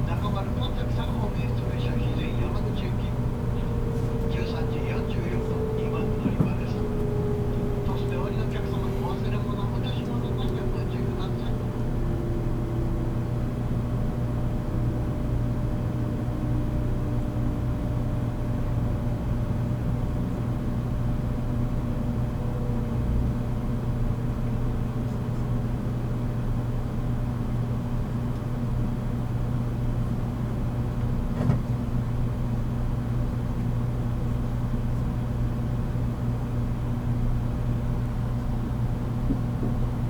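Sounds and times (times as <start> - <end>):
wheel and track rumble: 0.0 - 26.7, 38.2 - 40.0
electric train motor hum: 0.3 - 16.4
brief knock: 31.4 - 31.7.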